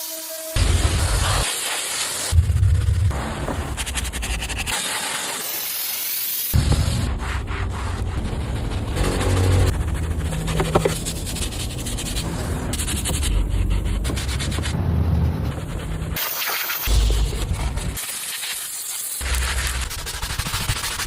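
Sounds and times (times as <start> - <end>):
steady low rumble: 2.4 - 4.6, 6.6 - 16.2.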